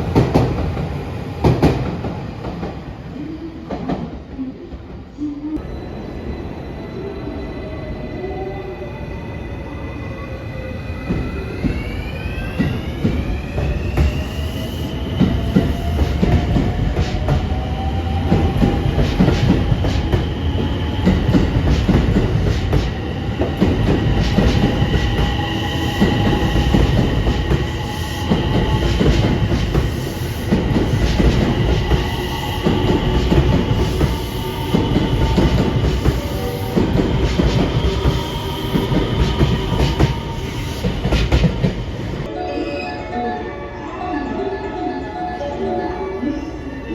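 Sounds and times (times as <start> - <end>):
heavy train rumble: 0.0 - 5.0, 11.1 - 42.3.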